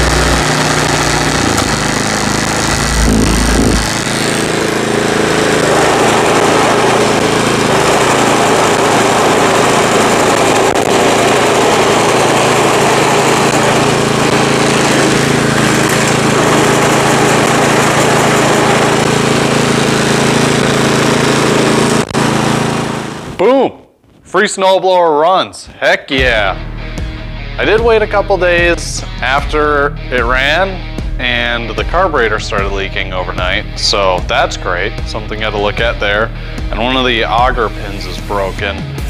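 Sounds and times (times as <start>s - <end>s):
snowblower engine running: 0.0s - 23.4s, 26.2s - 39.0s.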